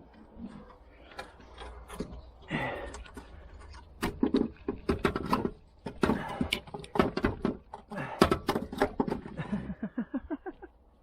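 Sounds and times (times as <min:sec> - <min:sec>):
hand tools clicking and knocking metal: 0:00.7 - 0:09.5.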